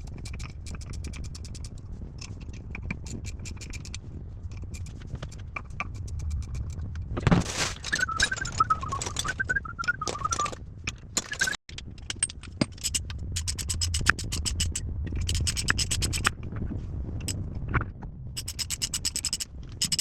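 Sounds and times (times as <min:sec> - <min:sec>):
wavering squeal: 0:07.6 - 0:10.6.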